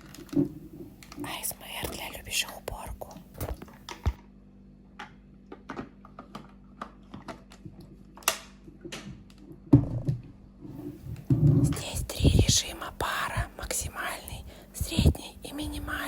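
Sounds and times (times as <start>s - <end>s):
light clicks and taps: 1.0s - 4.2s.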